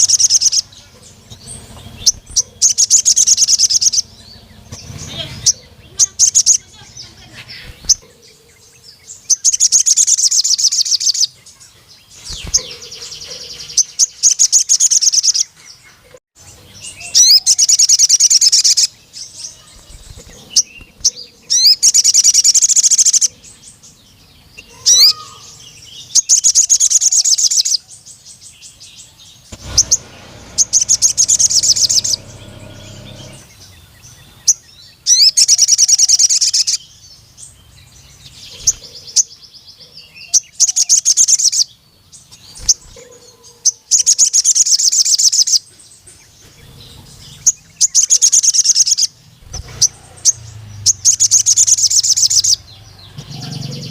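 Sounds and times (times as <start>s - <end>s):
bird twittering trills: 0.0s - 53.9s.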